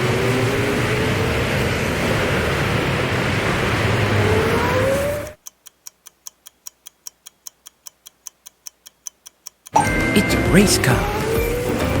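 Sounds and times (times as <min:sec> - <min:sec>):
race car engine running: 0:00.0 - 0:05.4, 0:09.8 - 0:12.0
timer clock ticking: 0:05.4 - 0:11.6.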